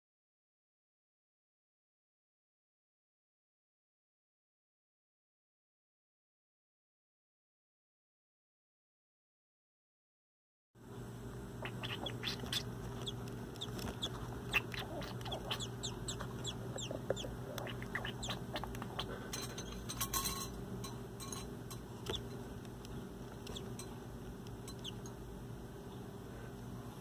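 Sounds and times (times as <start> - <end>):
steady low hum: 10.8 - 27.0
fledgling bird chirping: 11.4 - 19.3, 22.9 - 23.8, 24.7 - 25.0.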